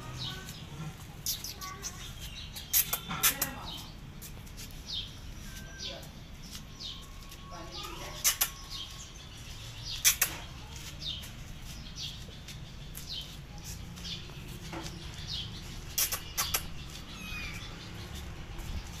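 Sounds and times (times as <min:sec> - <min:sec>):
small birds chirping: 0:00.0 - 0:19.0
sharp clicks: 0:02.6 - 0:03.6, 0:08.2 - 0:08.6, 0:10.0 - 0:10.5, 0:15.9 - 0:16.8.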